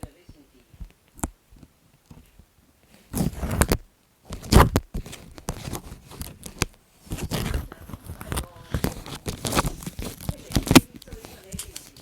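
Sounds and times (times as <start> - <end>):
paper rustling and crinkling: 2.1 - 12.0
paper tearing or snipping: 3.1 - 12.0.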